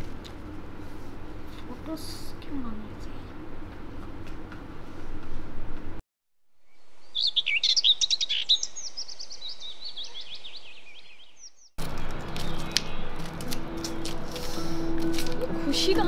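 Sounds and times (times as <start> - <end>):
outdoor street ambience: 0.0 - 6.0, 7.7 - 16.0
songbirds chirping in trills: 6.6 - 14.8.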